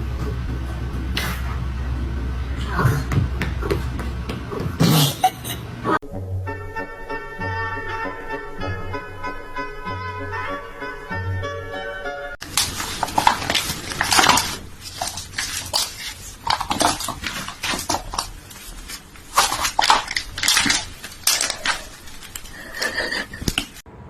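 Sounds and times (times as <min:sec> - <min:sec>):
hard objects clattering: 0:12.4 - 0:23.8.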